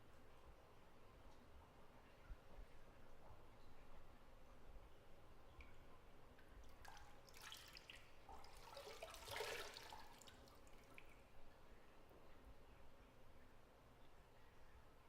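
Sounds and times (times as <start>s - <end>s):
bathwater splashing and dripping: 6.6s - 11.2s.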